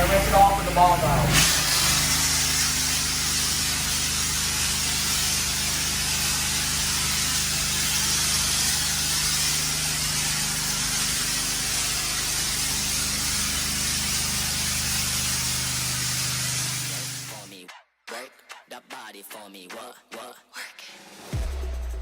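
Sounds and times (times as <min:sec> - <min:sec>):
pressure washer motor hum: 0:00.0 - 0:17.5
pressure washer water spraying: 0:00.0 - 0:17.5.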